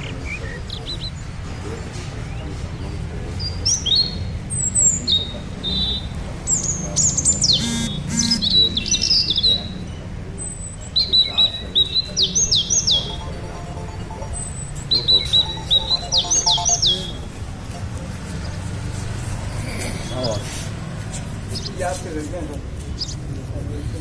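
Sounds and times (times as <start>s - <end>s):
birds chirping and whistling: 3.4s - 9.8s, 10.4s - 13.3s, 14.4s - 17.4s.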